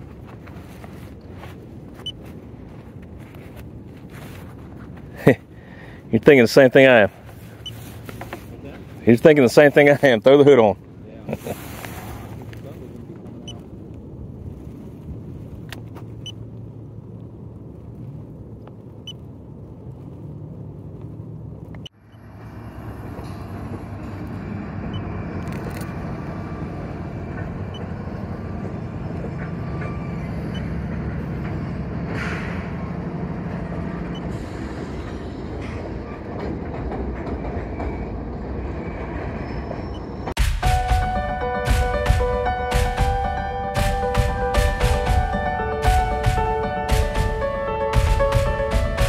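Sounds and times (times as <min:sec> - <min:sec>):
freight train rumbling over bridge: 0:04.8 - 0:49.0.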